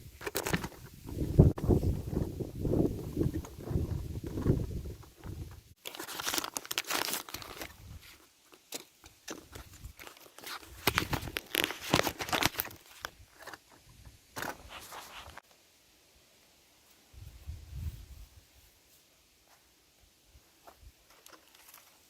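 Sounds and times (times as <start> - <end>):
material rustling and tearing: 5.8 - 13.1.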